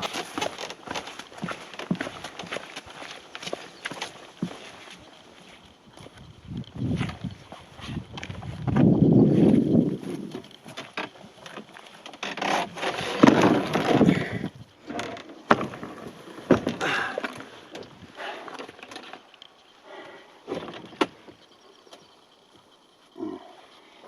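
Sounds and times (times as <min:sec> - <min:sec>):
kayak hull scraping ground: 0:00.0 - 0:02.9, 0:09.3 - 0:17.7.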